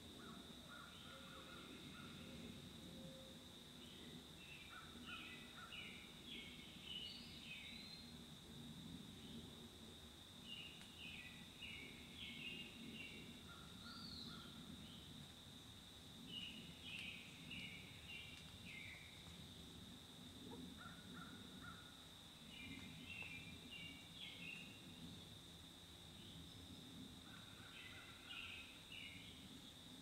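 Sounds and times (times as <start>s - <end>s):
songbird singing: 0.2s - 8.2s, 10.4s - 15.2s, 16.2s - 19.4s, 20.5s - 25.1s, 27.3s - 29.6s.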